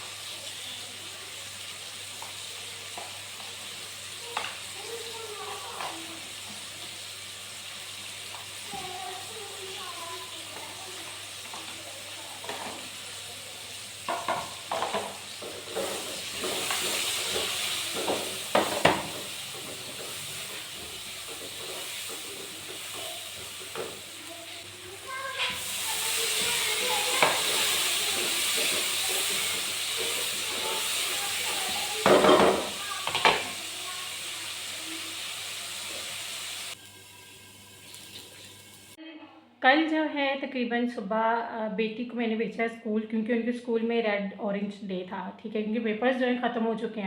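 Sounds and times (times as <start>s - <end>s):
food sizzling in hot oil: 0.0s - 39.0s
utensil knocking against pan: 14.1s - 24.0s.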